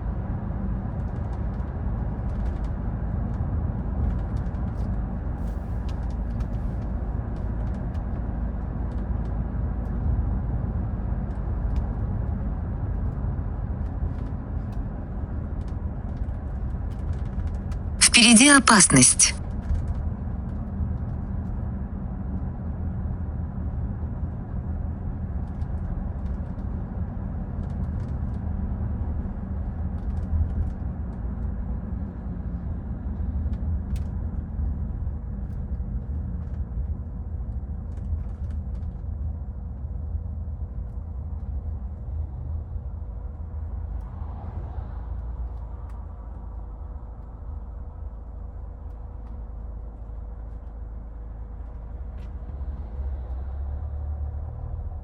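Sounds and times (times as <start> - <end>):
car engine and road rumble: 34.5 - 55.0.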